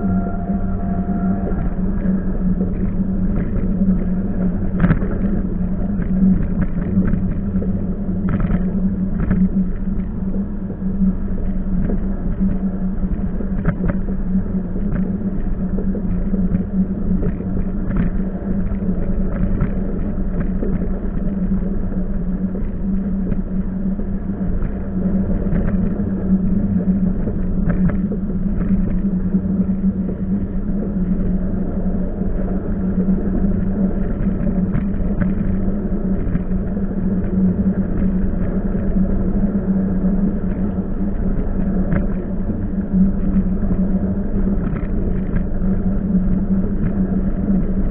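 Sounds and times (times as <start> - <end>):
train rumbling: 0.0 - 6.8.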